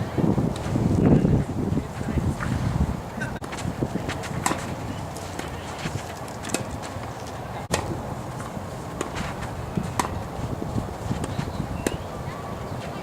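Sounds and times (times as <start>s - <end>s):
wind on microphone: 0.0s - 6.2s, 7.4s - 13.0s
tennis ball struck by racquets: 4.4s - 4.7s, 9.0s - 10.3s.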